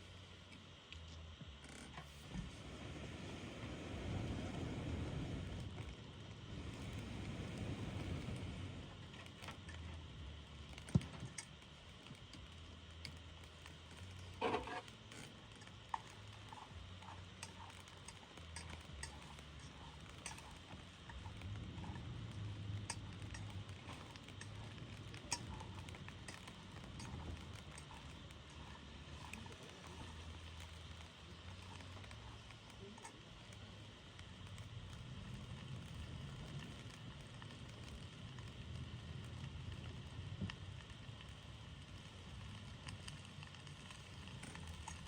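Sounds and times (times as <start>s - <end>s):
campfire crackles and pops: 0.0s - 45.0s
low rumble: 2.2s - 10.8s.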